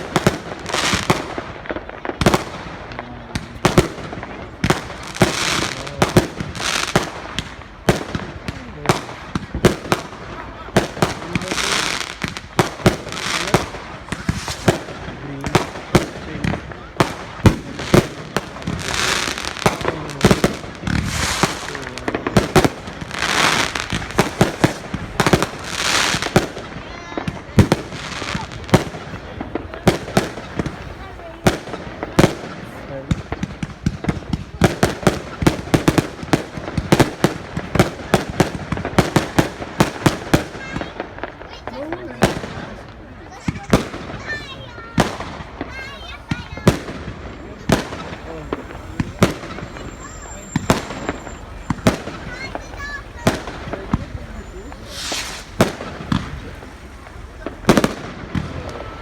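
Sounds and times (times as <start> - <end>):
fireworks bangs: 0.0 - 59.0
fireworks crackling hiss: 0.0 - 59.0.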